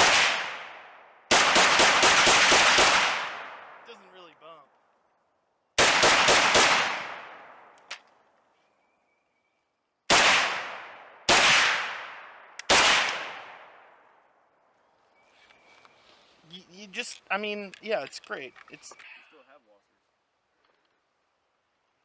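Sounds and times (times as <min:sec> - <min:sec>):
rifle shots with echo: 0:00.0 - 0:04.0, 0:05.8 - 0:07.8, 0:10.1 - 0:14.0.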